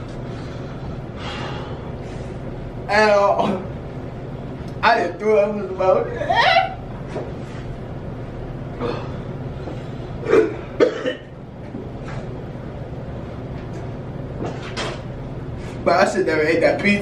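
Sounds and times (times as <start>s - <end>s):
man coughing: 10.2s - 11.3s.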